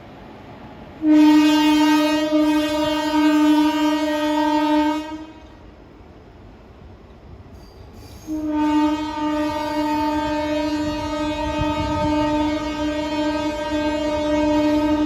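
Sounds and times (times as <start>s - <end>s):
low rumble of train: 0.0s - 15.0s
locomotive horn blasts: 1.0s - 5.6s, 8.3s - 15.0s.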